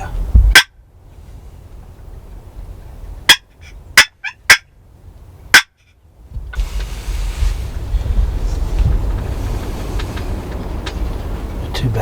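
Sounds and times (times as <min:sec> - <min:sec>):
turkey warbling calls: 0:03.3 - 0:04.7
turkeys gobbling: 0:03.3 - 0:04.7.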